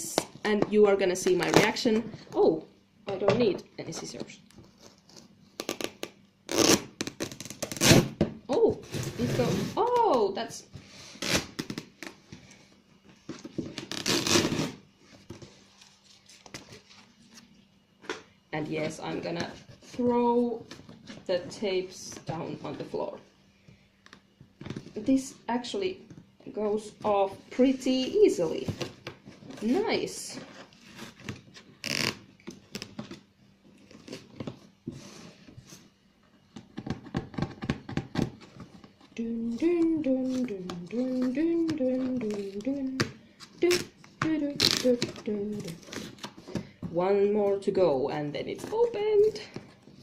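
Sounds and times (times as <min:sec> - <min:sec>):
tape crackling: 0:04.4 - 0:08.2, 0:37.8 - 0:46.8
packing tape ripping: 0:04.8 - 0:08.2, 0:11.2 - 0:12.1, 0:13.8 - 0:14.8, 0:31.8 - 0:32.9, 0:44.5 - 0:46.4.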